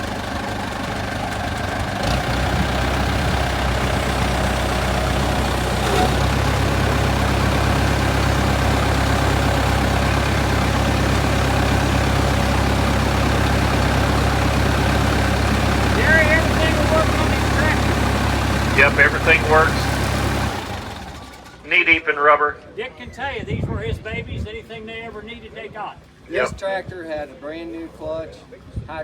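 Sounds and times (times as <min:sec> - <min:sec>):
tractor engine idling: 0:00.0 - 0:22.5.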